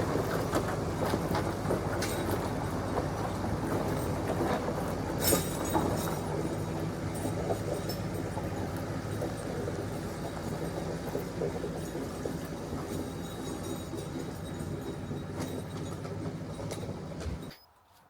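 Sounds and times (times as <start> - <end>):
tractor engine running: 0.0 - 17.6
tyre chains clanking: 5.2 - 8.3, 11.8 - 17.6.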